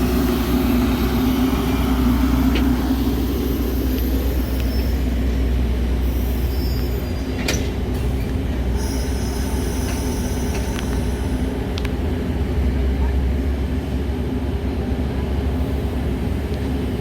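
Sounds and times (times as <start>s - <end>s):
train wheels squealing: 0.0s - 11.5s
train rumbling: 0.0s - 17.0s.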